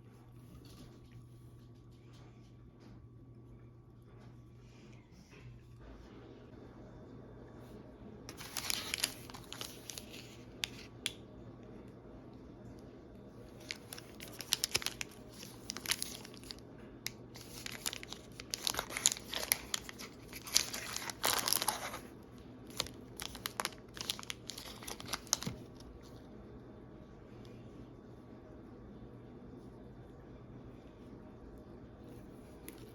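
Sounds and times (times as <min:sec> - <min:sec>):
snack wrapper crinkling and tearing: 0:08.3 - 0:10.8, 0:13.6 - 0:22.1, 0:22.7 - 0:25.8.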